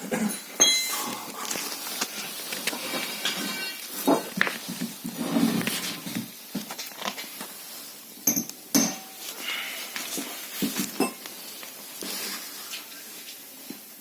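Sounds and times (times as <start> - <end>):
metal tools clinking: 0.2 - 1.6, 3.2 - 4.0.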